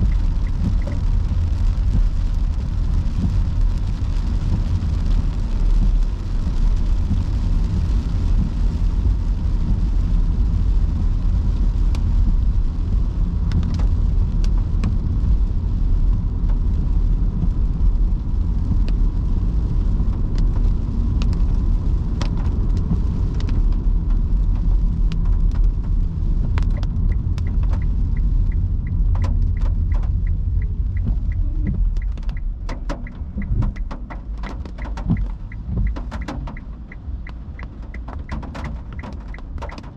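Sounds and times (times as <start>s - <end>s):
raindrops ticking on car body: 0.0s - 39.9s
road and tyre rumble: 0.0s - 39.9s
regular ticking: 26.6s - 39.9s.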